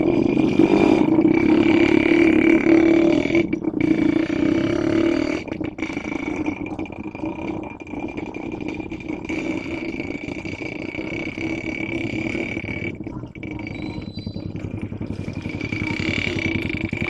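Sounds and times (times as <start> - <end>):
diesel locomotive engine drone: 0.0 - 17.0.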